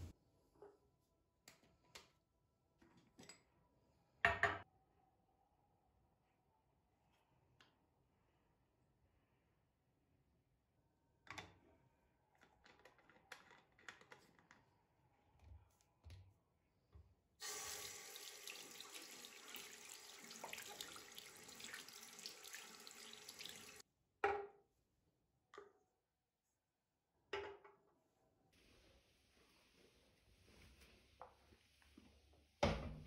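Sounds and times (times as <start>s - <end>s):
tap running into a sink: 17.4s - 23.8s.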